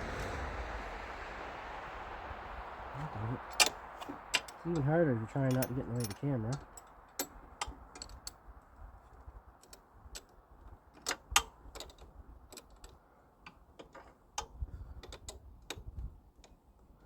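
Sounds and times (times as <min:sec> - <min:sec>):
wrench clicking on metal: 0:05.5 - 0:08.4.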